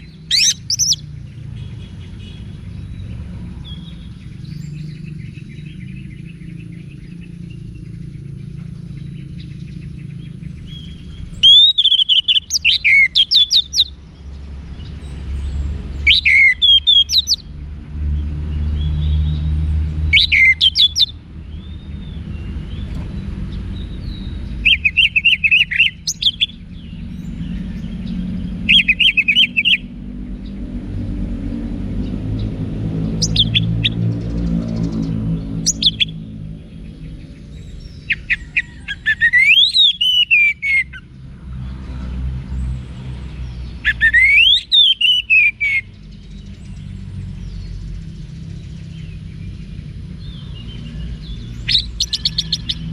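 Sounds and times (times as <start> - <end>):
thrush singing whistled phrases: 0.0 - 1.1, 10.7 - 13.9, 16.0 - 17.5, 20.1 - 21.1, 39.0 - 41.0, 43.8 - 45.9.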